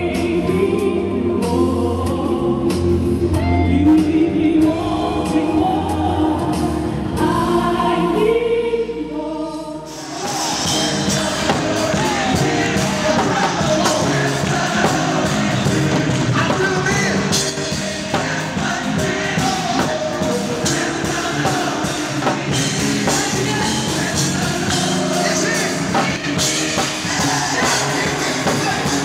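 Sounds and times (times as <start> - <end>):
full band playing: 0.0 - 29.0
gospel singing: 0.0 - 29.0
drum kit steady beat: 9.9 - 29.0.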